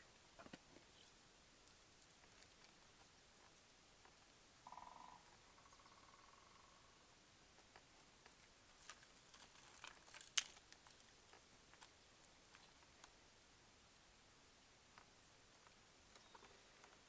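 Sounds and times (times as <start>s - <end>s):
hard objects clicking and rattling: 1.0s - 5.4s, 7.6s - 13.1s.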